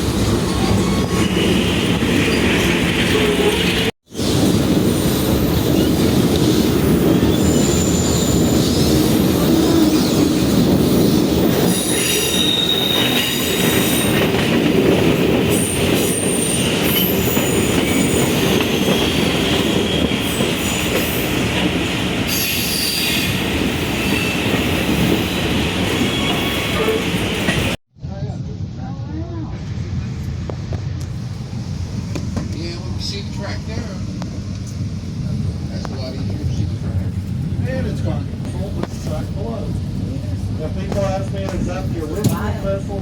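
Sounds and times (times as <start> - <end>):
train cars rumbling on track: 0.0 - 27.8, 28.6 - 43.0
steel wheels squealing: 0.5 - 14.4, 15.5 - 21.5, 22.3 - 27.7.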